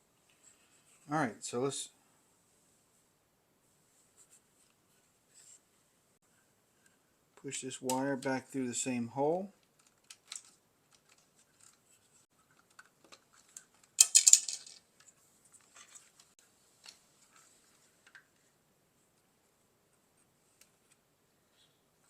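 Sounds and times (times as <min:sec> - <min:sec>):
plastic parts clicking and scraping: 0:09.6 - 0:18.4.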